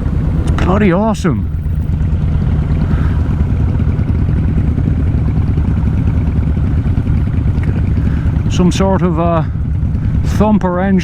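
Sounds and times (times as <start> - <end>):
motorcycle engines rumbling: 0.0 - 11.0.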